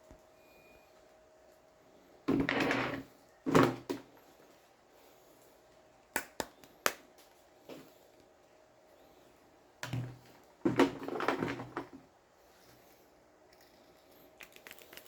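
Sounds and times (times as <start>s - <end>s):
rustling and knocking of parts: 9.8s - 12.8s, 13.5s - 15.0s.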